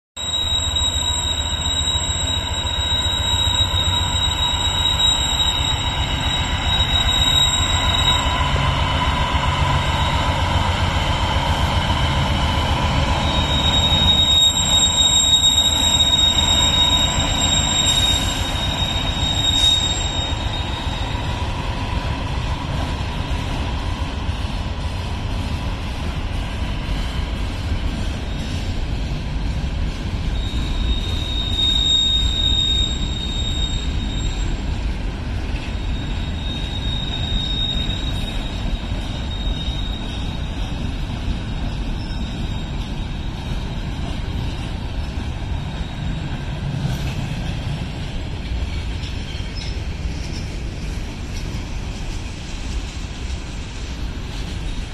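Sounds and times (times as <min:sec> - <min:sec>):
high wheel squeal: 0:00.2 - 0:21.8, 0:30.0 - 0:50.5
train wheels rumbling on rail: 0:00.2 - 0:54.9.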